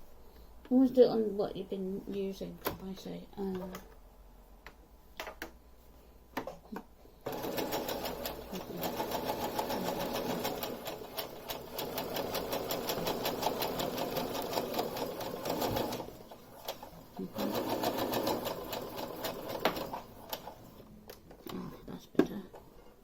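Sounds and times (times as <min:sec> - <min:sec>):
sewing machine clicks: 0:07.3 - 0:20.7
sewing machine stitching: 0:07.3 - 0:20.8.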